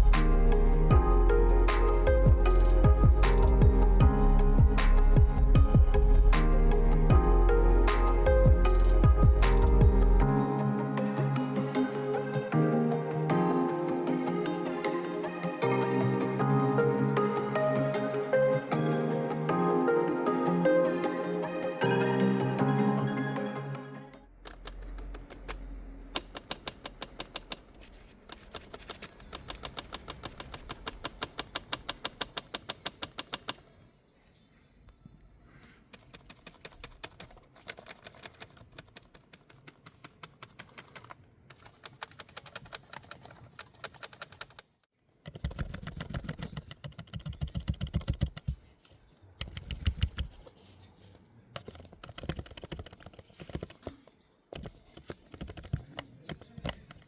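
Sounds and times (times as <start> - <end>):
rapid mechanical clicking: 24.4 - 33.6.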